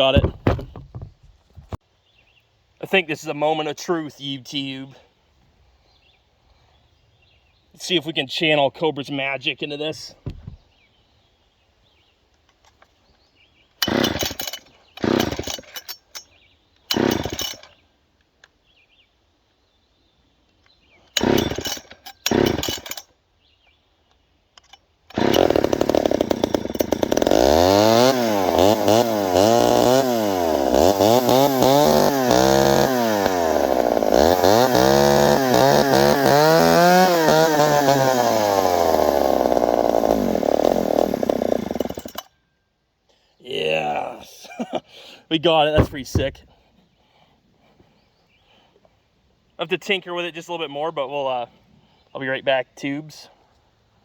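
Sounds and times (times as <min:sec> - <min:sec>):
chainsaw engine revving: 0:13.8 - 0:15.9, 0:16.9 - 0:17.8, 0:21.1 - 0:23.1, 0:25.1 - 0:42.3, 0:45.8 - 0:46.4
chainsaw starter cord pulls: 0:13.8 - 0:17.8, 0:21.1 - 0:23.1, 0:24.6 - 0:42.4, 0:45.7 - 0:46.5.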